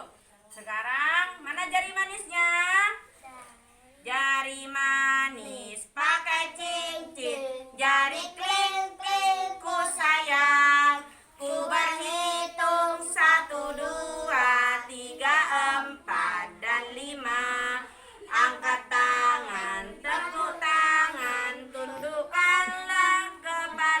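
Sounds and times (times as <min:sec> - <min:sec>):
woman singing: 0:04.1 - 0:24.0
children singing: 0:06.0 - 0:24.0.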